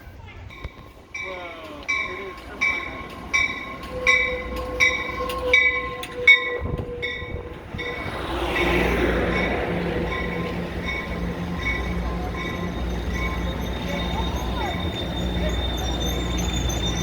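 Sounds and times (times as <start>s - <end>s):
low train rumble: 0.0s - 17.0s
train bell clanging: 0.5s - 17.0s
broad rushing noise: 7.4s - 12.5s.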